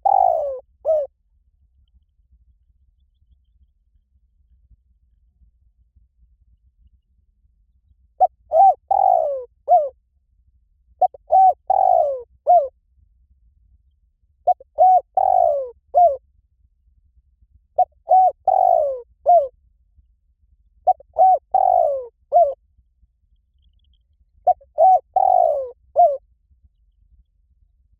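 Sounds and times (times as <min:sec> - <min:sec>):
dove cooing: 0:00.0 - 0:01.1, 0:08.2 - 0:09.9, 0:11.0 - 0:12.7, 0:14.5 - 0:16.2, 0:17.8 - 0:19.5, 0:20.9 - 0:22.6, 0:24.5 - 0:26.2.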